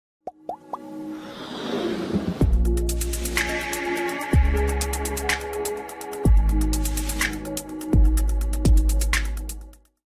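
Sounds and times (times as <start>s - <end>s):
noise and music build-up: 0.8s - 8.1s.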